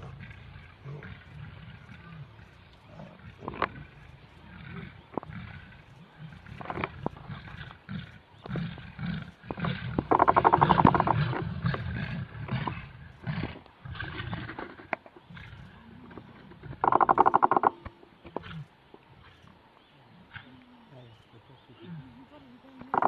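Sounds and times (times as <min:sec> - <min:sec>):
lions growling and snarling: 0:00.0 - 0:22.5.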